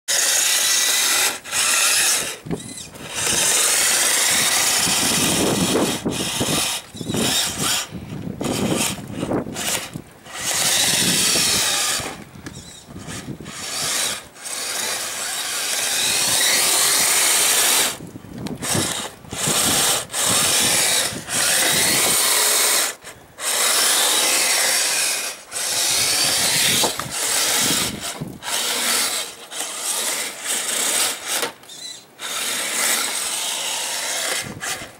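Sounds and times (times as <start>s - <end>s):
small electric motors whirring: 0.1s - 34.9s.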